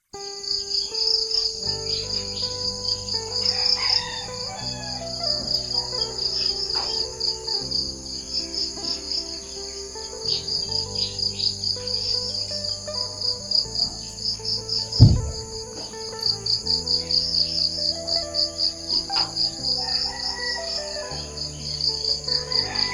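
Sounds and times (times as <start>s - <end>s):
insects trilling: 0.0s - 22.9s
birds chirping: 0.2s - 22.9s
soft background music chords: 0.2s - 22.9s.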